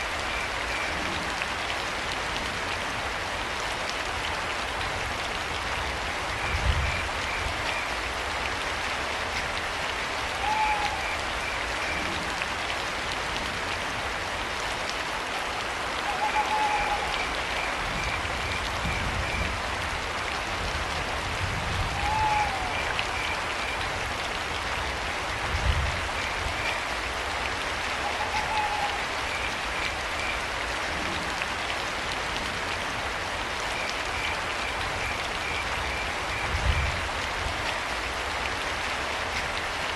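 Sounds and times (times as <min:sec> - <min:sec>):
rain falling: 0:00.0 - 0:39.9
owl hooting: 0:10.4 - 0:11.2, 0:16.1 - 0:17.1, 0:22.0 - 0:22.8.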